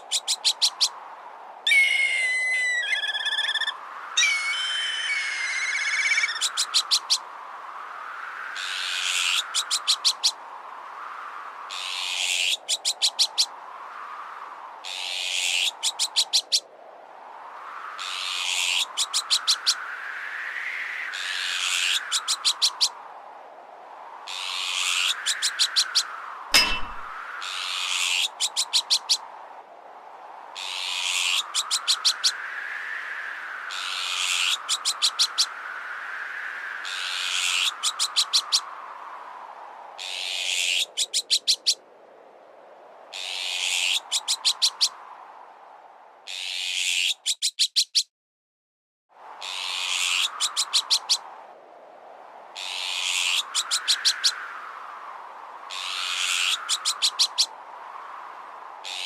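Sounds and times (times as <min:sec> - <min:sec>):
whistling wind-like tone: 0:00.0 - 0:46.3, 0:49.2 - 0:59.0
sharp bird notes: 0:01.7 - 0:06.4, 0:26.6 - 0:27.1
harsh hissing bird call: 0:01.7 - 0:07.2.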